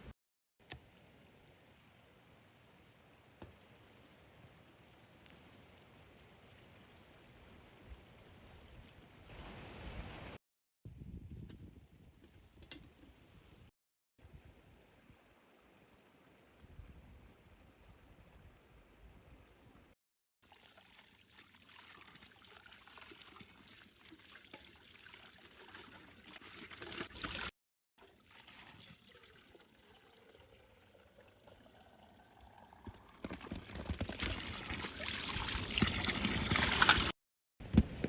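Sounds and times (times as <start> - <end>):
water pouring into container: 20.4 - 37.2.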